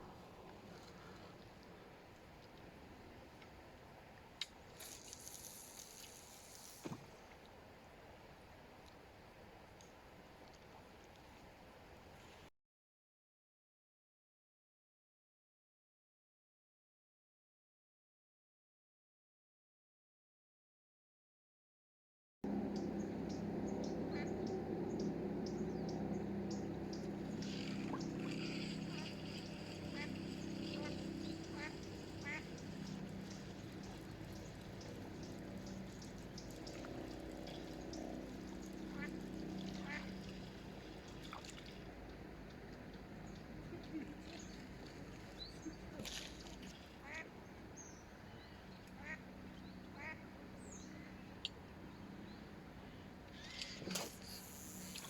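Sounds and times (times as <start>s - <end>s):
steady low hum: 22.5s - 55.0s
small birds chirping: 22.7s - 39.2s, 47.8s - 55.0s
duck quacking faintly: 27.3s - 35.0s, 38.9s - 40.2s, 46.8s - 47.4s, 49.0s - 49.2s, 50.0s - 50.3s.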